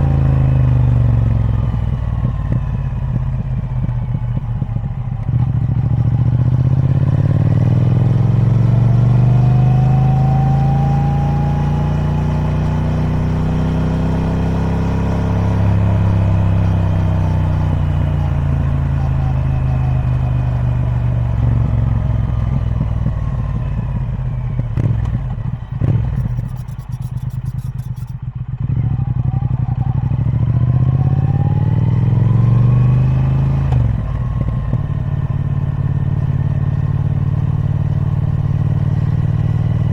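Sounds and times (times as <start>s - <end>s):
motorcycle engine riding: 0.0s - 39.9s
sharp clicks: 25.8s - 28.2s.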